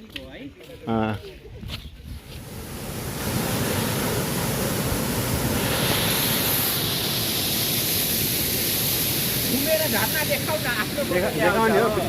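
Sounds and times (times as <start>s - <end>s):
waterfall roaring: 2.4s - 12.0s.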